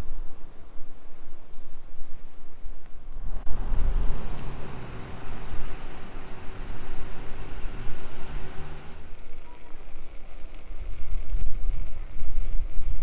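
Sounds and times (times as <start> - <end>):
car driving past: 3.3 - 9.2.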